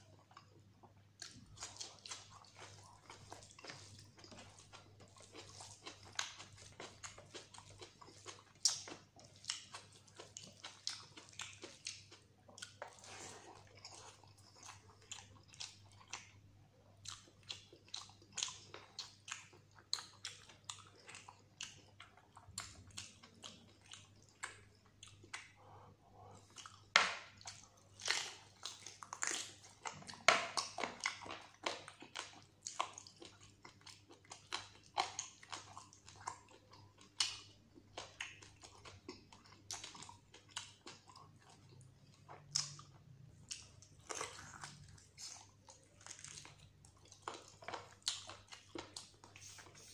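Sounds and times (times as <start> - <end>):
wet chewing and mouth sounds: 0.0 - 49.9.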